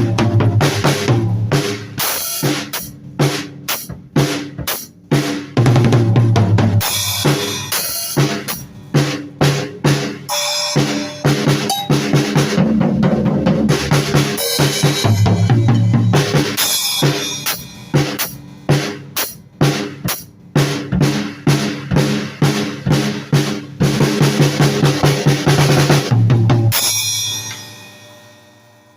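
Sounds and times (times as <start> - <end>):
drum kit playing: 0.0 - 28.7
cowbell hits: 10.3 - 12.4.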